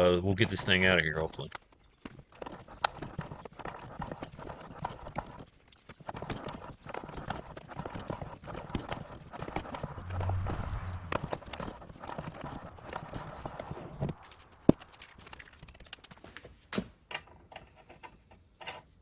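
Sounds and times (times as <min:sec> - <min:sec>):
low hum: 0:09.3 - 0:16.0.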